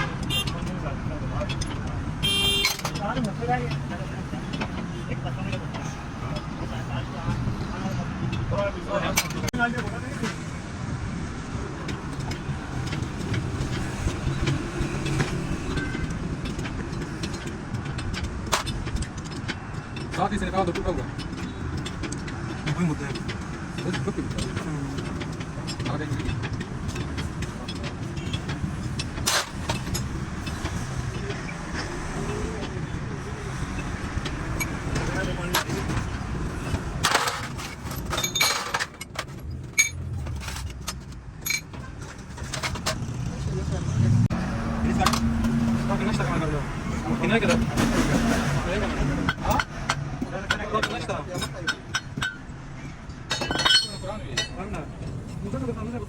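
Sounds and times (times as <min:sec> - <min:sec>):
sharp metallic clicks and knocks: 0:00.0 - 0:56.0
metal tools clinking: 0:33.5 - 0:43.2, 0:49.3 - 0:54.8.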